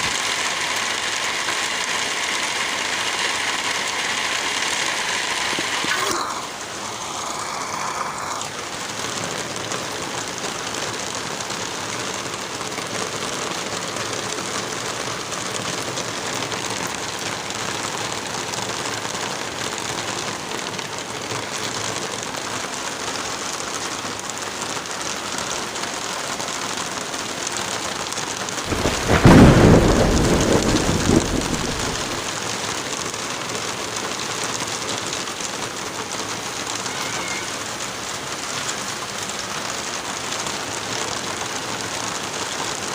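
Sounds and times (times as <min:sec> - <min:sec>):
heavy rain: 0:00.0 - 0:42.9
thunderclap rumbling: 0:28.7 - 0:32.4.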